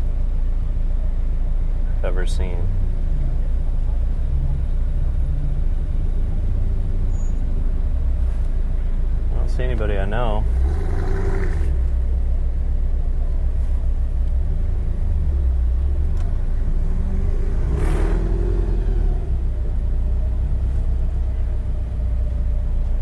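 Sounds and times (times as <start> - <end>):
boxer engine idling: 19.0 - 23.0.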